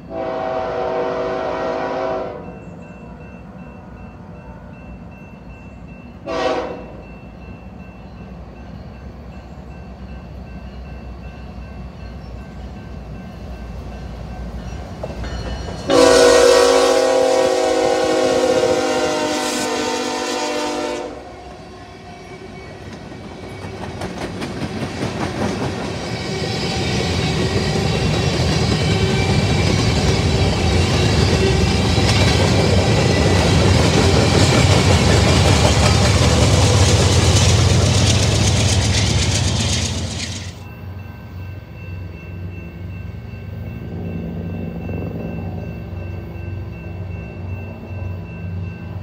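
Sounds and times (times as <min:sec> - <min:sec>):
locomotive horn: 0:00.0 - 0:02.6, 0:06.2 - 0:07.1, 0:15.9 - 0:21.6
train wheels clattering over rail joints: 0:22.8 - 0:40.6.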